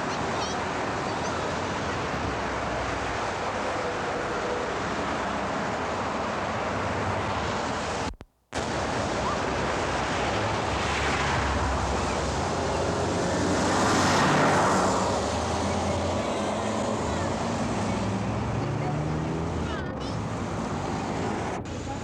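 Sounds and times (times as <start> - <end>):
street noise: 0.0 - 22.0
vehicle passing: 10.1 - 22.0.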